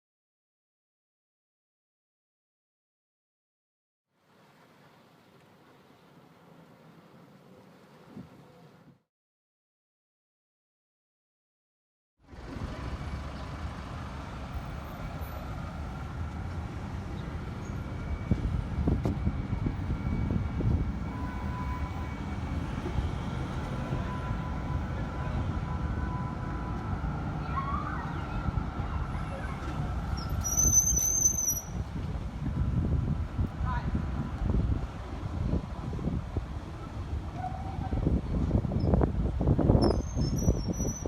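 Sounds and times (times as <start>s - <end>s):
tram low rumble: 12.2s - 41.0s
brief high squeal: 30.1s - 31.8s, 39.8s - 41.0s.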